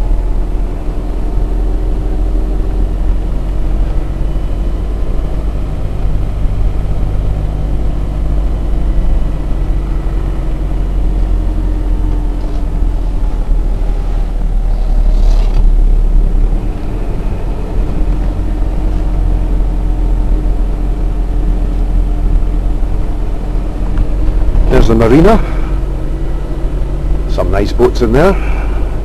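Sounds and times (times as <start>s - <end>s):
vehicle engine and road rumble: 0.0s - 29.0s.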